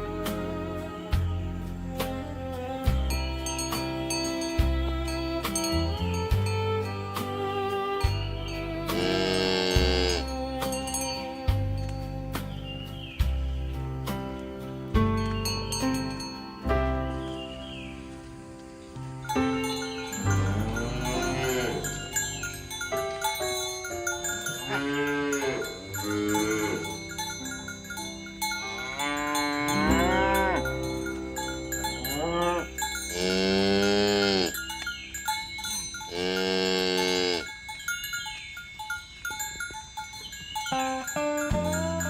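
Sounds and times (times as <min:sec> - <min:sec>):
cattle mooing: 0:08.8 - 0:10.4, 0:20.2 - 0:22.2, 0:24.6 - 0:27.0, 0:28.7 - 0:30.8, 0:32.1 - 0:34.6, 0:36.1 - 0:37.5.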